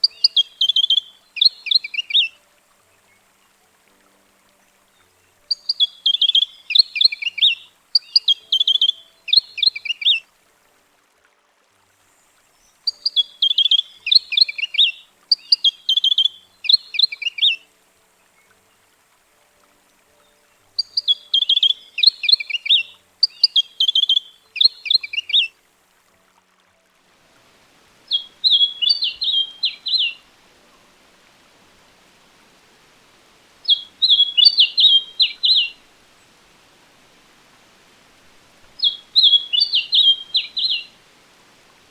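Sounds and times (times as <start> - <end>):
bird singing trilled phrases: 0.0 - 3.2, 5.0 - 10.2, 12.6 - 17.6, 20.2 - 25.5, 28.1 - 30.2, 33.6 - 35.8, 38.8 - 40.9
faint background hiss: 0.0 - 41.9.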